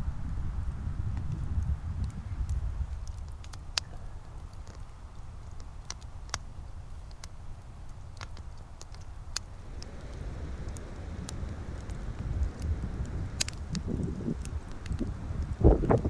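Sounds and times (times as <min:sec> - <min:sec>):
campfire crackling and popping: 0:00.0 - 0:16.0
low rumble: 0:09.5 - 0:16.0.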